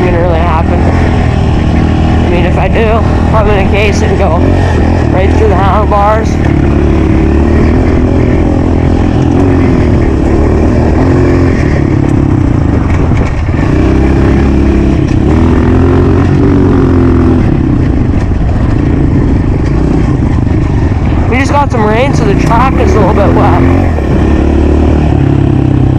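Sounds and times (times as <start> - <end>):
dirt bike engine revving: 0.0 - 25.9.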